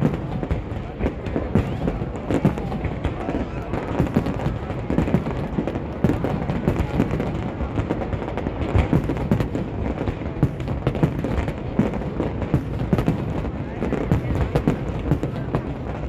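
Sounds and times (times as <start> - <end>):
fireworks booms and crackling: 0.0 - 16.0.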